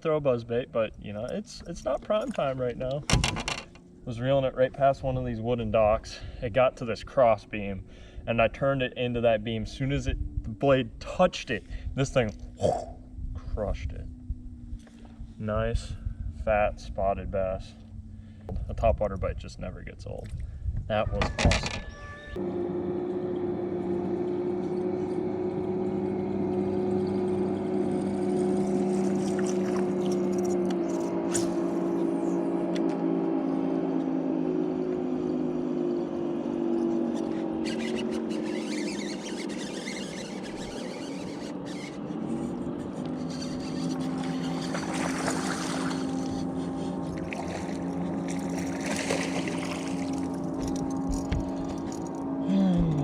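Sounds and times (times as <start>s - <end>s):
outboard motor running: 22.4s - 53.0s
water rushing: 44.1s - 51.8s.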